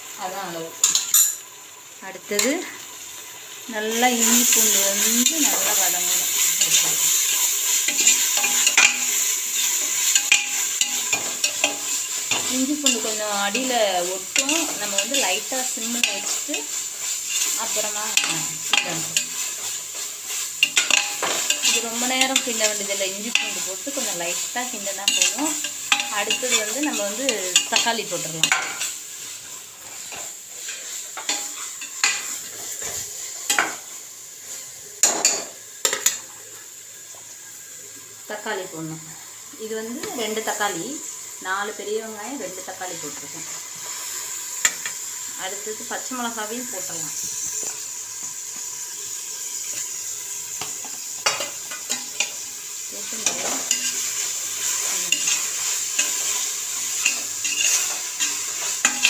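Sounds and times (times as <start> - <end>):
faint sizzling in oil: 0.0 - 59.0
metal ladle scraping in a pot: 53.2 - 59.0.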